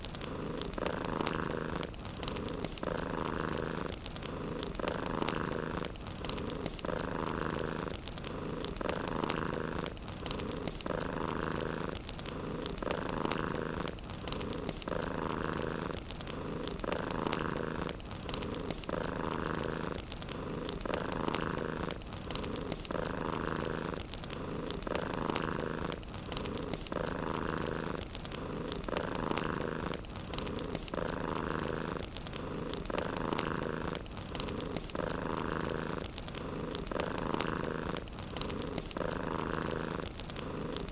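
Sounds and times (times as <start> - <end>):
cat purring: 0.0 - 40.9
fireplace crackling: 0.0 - 40.9.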